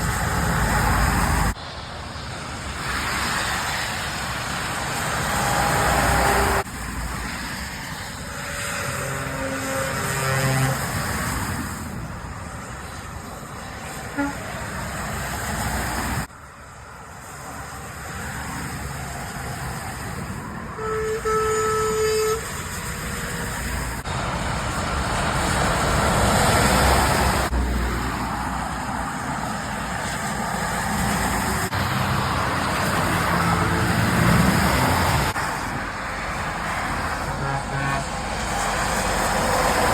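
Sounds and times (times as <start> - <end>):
traffic passing on wet road: 0.0 - 39.9
truck horn toot: 5.3 - 6.6, 8.7 - 10.9, 14.1 - 14.7, 20.8 - 22.7, 37.3 - 38.3.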